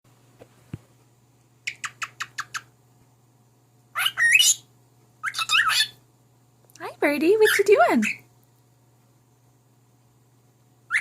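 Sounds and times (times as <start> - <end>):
cockatiel chirping: 1.7 - 2.7, 3.9 - 6.0.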